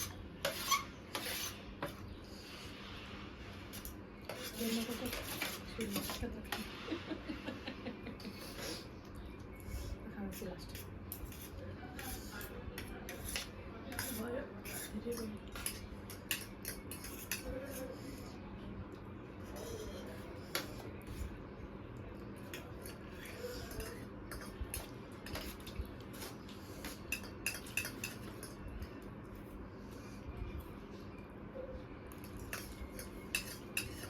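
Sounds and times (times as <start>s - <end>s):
spoons clinking on plates: 10.6s - 17.9s, 22.4s - 29.0s, 32.1s - 34.0s.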